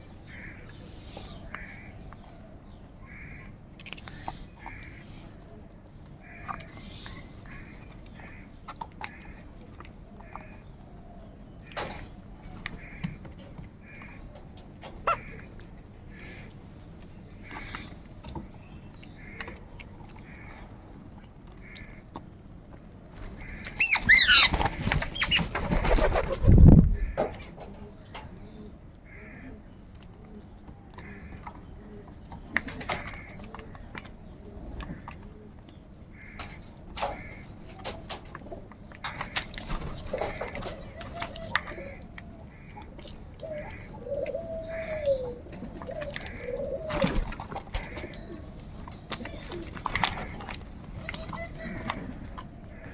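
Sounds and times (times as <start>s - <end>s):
crows cawing: 0.3s - 2.0s, 3.0s - 3.5s, 6.2s - 9.5s, 12.7s - 14.4s, 15.0s - 15.5s, 17.4s - 18.0s, 21.6s - 22.2s, 23.3s - 26.0s, 29.1s - 29.6s, 36.1s - 37.6s, 39.0s - 48.4s, 49.9s - 52.9s
crows calling harshly: 12.8s - 13.2s, 14.9s - 15.5s, 23.3s - 26.1s, 36.1s - 37.6s
low cooing call: 43.4s - 48.4s, 51.0s - 52.9s.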